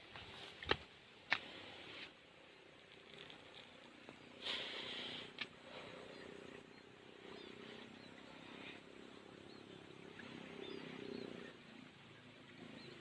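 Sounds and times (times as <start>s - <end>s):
small birds chirping: 2.5s - 13.0s.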